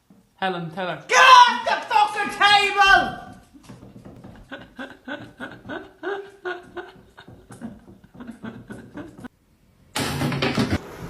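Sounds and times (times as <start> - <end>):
person chuckling softly: 4.2 - 9.3.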